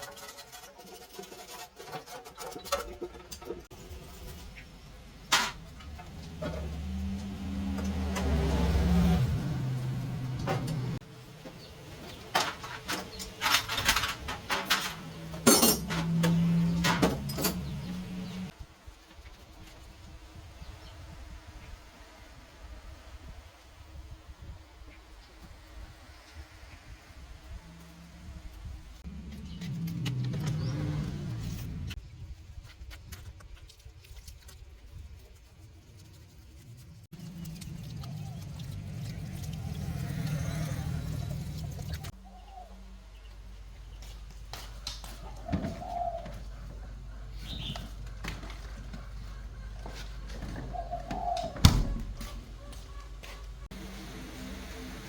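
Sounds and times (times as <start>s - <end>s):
metal tools clinking: 12.4s - 18.0s.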